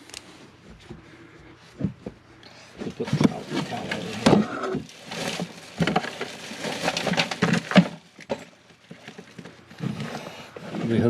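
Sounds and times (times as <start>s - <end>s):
tools knocking and clattering: 7.0s - 9.5s.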